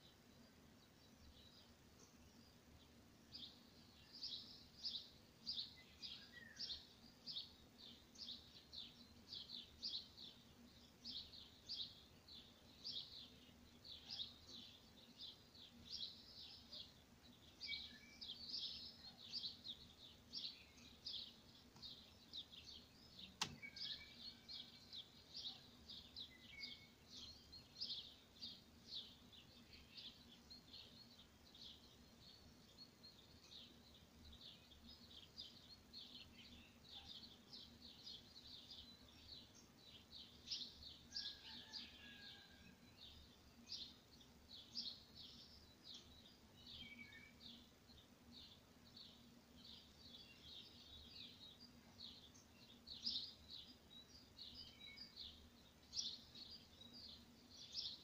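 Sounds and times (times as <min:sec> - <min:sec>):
small bird chirping: 0:00.0 - 0:58.0
sharp click: 0:23.4 - 0:23.7.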